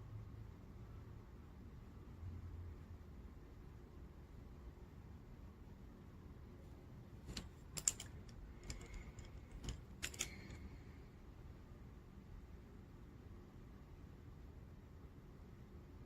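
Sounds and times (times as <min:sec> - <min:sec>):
plastic pens clicking: 0:07.3 - 0:10.6.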